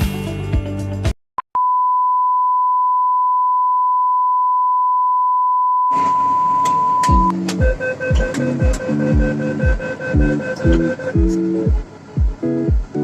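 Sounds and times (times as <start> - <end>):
music: 0.0 - 1.2, 7.0 - 13.0
steady electronic beep tone: 1.6 - 11.8.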